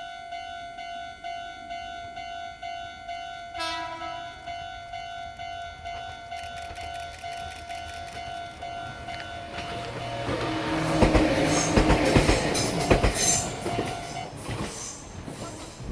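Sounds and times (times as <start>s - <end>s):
train wheels clattering over rail joints: 5.9s - 15.9s.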